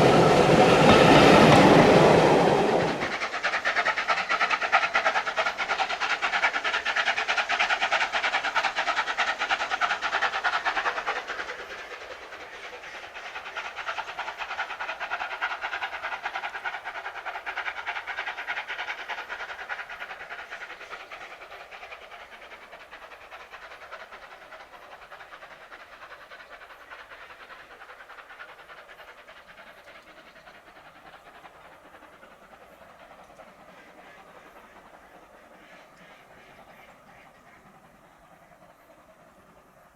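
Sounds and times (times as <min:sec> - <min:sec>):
train passing: 0:00.0 - 0:39.9.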